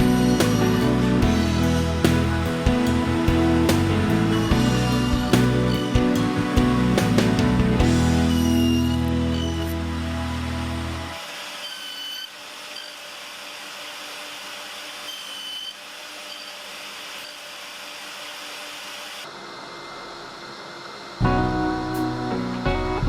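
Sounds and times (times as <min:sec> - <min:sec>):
guitar music: 0:00.0 - 0:11.2, 0:21.2 - 0:23.0
power tool whirring: 0:00.0 - 0:21.2.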